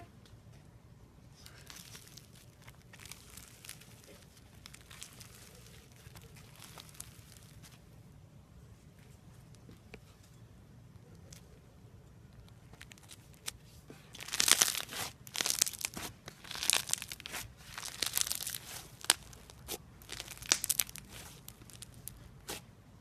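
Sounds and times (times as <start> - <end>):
crunchy slime crackling: 1.4 - 7.9, 12.4 - 22.8.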